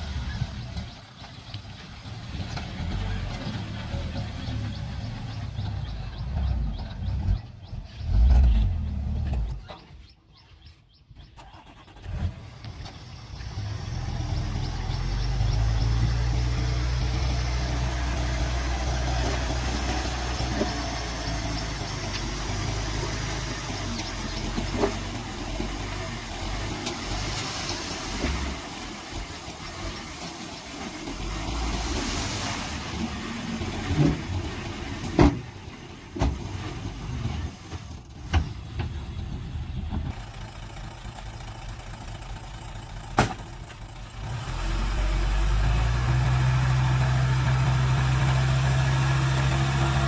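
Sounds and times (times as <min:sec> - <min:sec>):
earthmoving vehicle engine rumble: 0:00.0 - 0:50.0
birds chirping: 0:00.1 - 0:11.9, 0:12.8 - 0:26.3.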